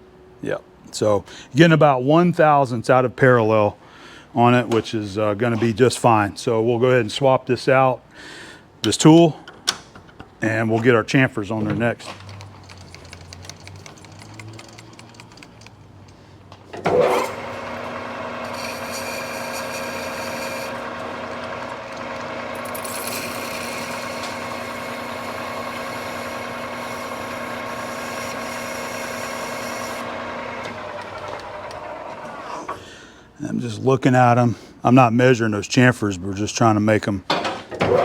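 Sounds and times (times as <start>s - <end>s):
tooling clicking: 12.1s - 31.8s
metal lathe running with gear whine: 16.9s - 32.2s.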